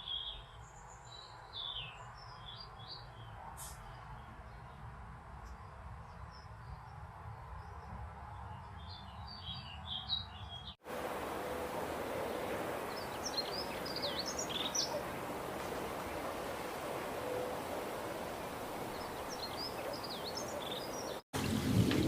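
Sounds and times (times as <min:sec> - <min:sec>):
small birds chirping: 0:00.0 - 0:21.8
steady hiss: 0:10.9 - 0:22.0.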